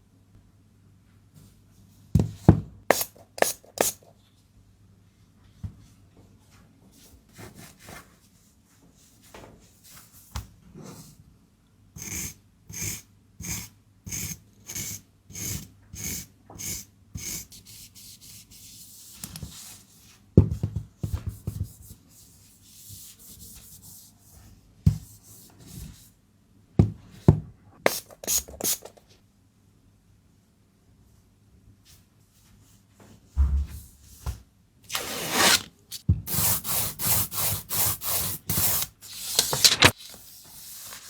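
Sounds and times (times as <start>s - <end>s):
hands rubbing packaging: 34.9s - 41.0s.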